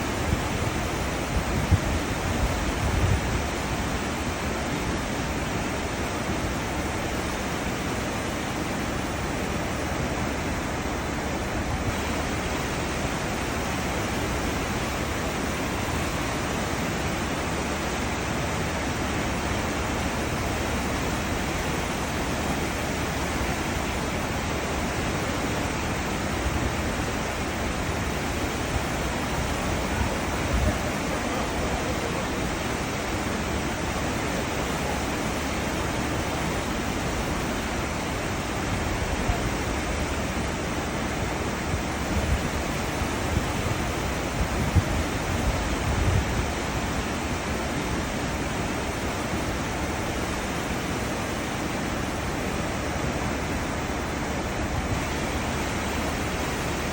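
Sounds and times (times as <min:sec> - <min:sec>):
churning seawater rushing: 0:00.0 - 0:56.9.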